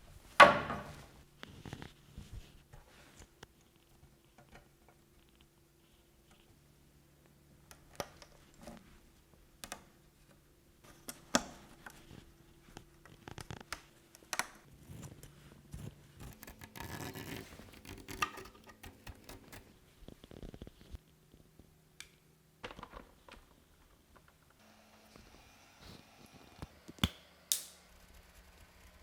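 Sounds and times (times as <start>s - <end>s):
scratchy rustle: 14.7s - 21.0s
hands handling tools clicking: 16.4s - 19.6s.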